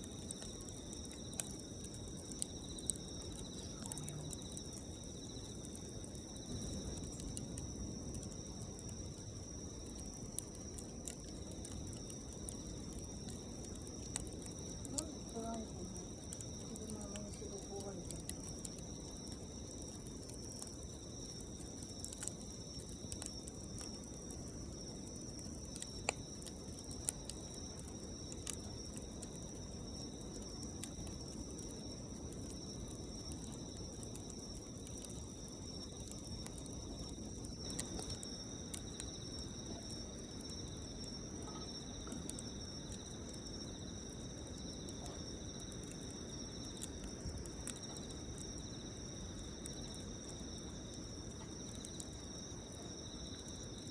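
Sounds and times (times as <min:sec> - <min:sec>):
campfire crackling and popping: 0:00.0 - 0:53.9.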